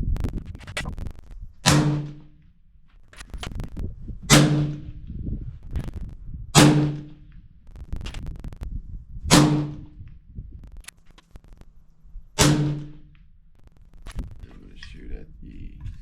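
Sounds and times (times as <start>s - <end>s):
suppressed rifle shots: 1.6s - 2.4s, 4.3s - 5.0s, 6.6s - 7.3s, 9.3s - 10.0s, 12.4s - 13.2s
faint clicks: 10.0s - 11.9s.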